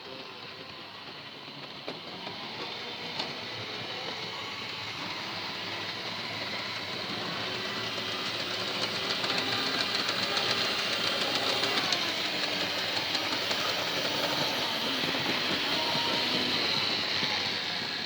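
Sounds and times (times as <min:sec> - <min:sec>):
model train motor whirr: 0:00.0 - 0:18.0.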